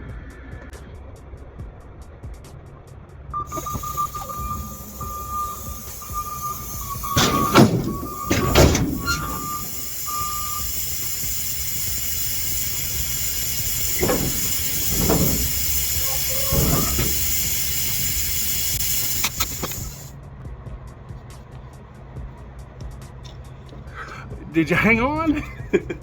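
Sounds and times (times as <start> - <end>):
high whistle: 3.4 - 20.0
loud metal clanks: 3.5 - 20.1
compressed air hissing: 3.5 - 20.2.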